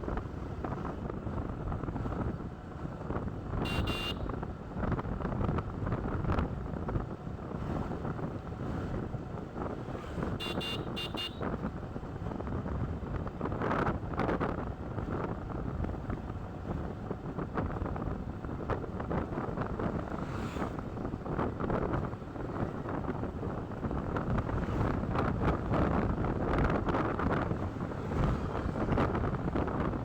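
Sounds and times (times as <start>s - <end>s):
motorcycle engine rumble: 0.0s - 30.0s
high horn beeps: 3.6s - 4.3s, 10.4s - 11.5s
wind buffeting microphone: 11.5s - 30.0s.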